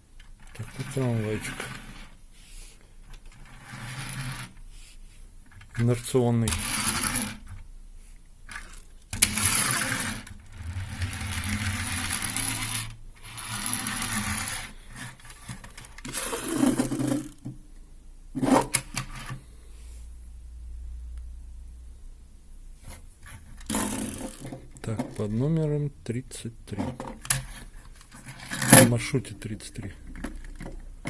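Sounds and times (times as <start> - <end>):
toy tram flywheel whirring: 3.3 - 4.6, 6.5 - 7.4, 8.5 - 15.3, 23.6 - 24.5.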